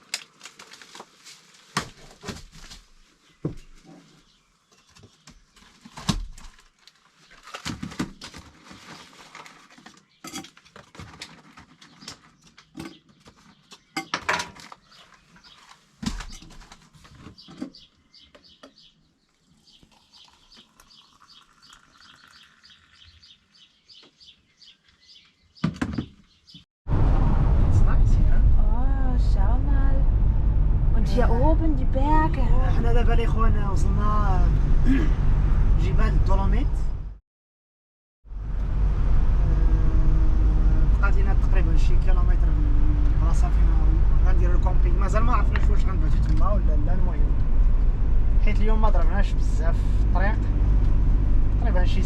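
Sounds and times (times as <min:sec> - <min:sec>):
utensils and dishes clinking: 0:10.2 - 0:10.6.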